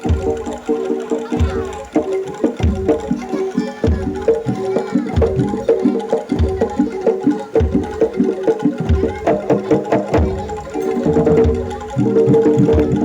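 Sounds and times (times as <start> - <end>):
drum slaps: 0.0 - 13.0
gamelan-style pitched notes: 0.0 - 13.0.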